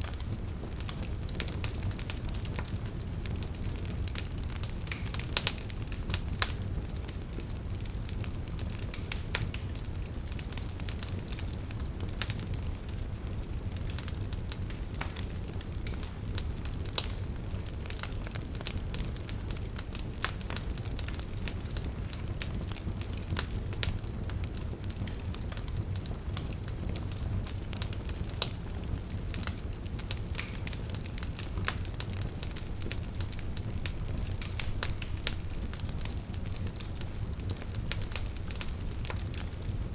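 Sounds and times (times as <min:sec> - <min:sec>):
fire pops: 0:00.0 - 0:39.9
wood fire crackling: 0:00.0 - 0:39.9.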